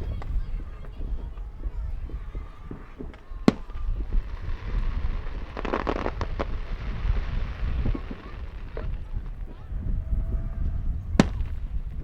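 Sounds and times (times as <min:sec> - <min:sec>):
firework sharp crack: 0:00.0 - 0:09.7, 0:11.1 - 0:12.0
fireworks crackling pops: 0:00.0 - 0:09.8, 0:11.1 - 0:12.0
steady low rumble: 0:03.4 - 0:12.0.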